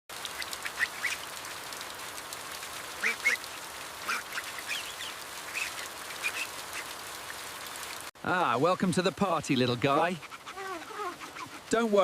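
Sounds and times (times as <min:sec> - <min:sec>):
rain hiss: 0:00.1 - 0:12.0
short high animal calls: 0:10.3 - 0:11.7.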